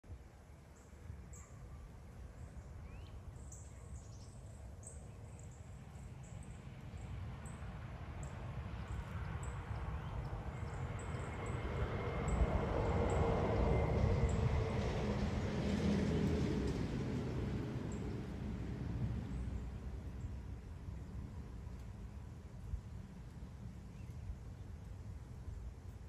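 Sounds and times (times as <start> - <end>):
small birds chirping: 21.7 - 25.4.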